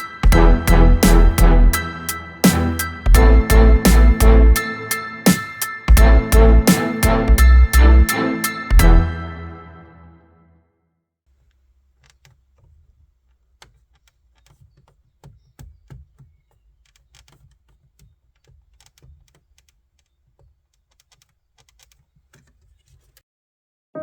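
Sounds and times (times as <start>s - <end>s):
plastic dash trim clicking: 11.5s - 23.2s.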